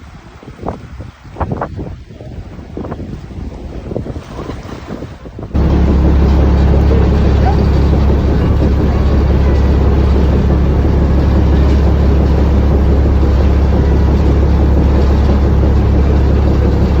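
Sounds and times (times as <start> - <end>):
ferry engine droning: 5.6 - 17.0.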